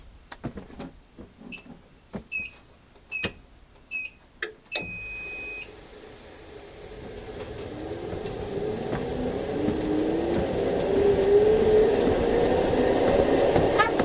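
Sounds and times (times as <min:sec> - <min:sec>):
treadmill motor and belt running: 0:05.2 - 0:14.0.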